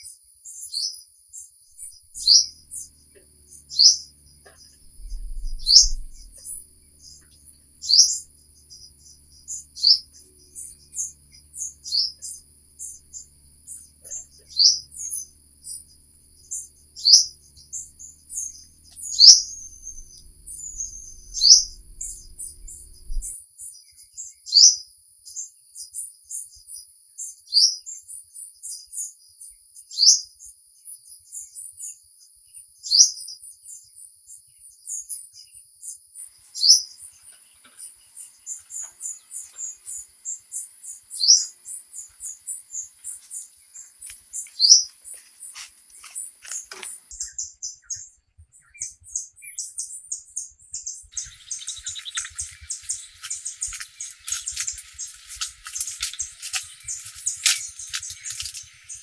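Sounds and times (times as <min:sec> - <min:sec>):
bird chirping: 0:01.7 - 0:23.4, 0:36.2 - 0:48.0, 0:51.1 - 0:59.0
faint bird chirps: 0:01.7 - 0:23.4, 0:36.3 - 0:50.0, 0:50.8 - 0:59.0
high-pitched hum: 0:01.8 - 0:23.4, 0:51.2 - 0:59.0.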